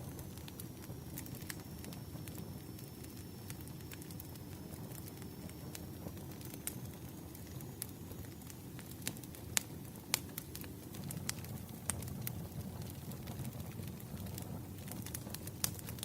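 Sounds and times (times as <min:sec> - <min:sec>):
low rumble of burning logs: 0:00.0 - 0:16.0
wood fire crackling: 0:00.0 - 0:16.0.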